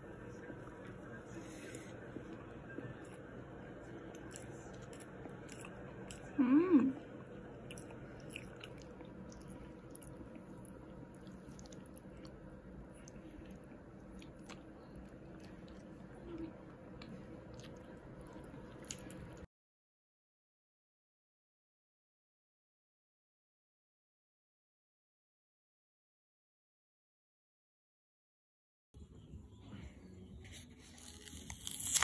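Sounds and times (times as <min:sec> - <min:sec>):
low background hum: 0:00.0 - 0:19.5, 0:29.0 - 0:32.0
person chewing: 0:04.0 - 0:06.4, 0:07.0 - 0:19.4, 0:30.8 - 0:32.0.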